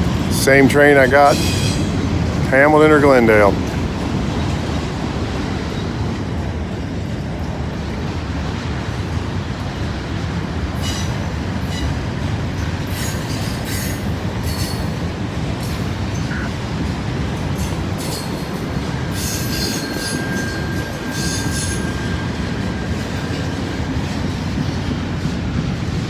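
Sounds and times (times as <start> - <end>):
freight train cars rumbling: 0.0 - 26.0
high-pitched wheel squeals: 17.6 - 24.0.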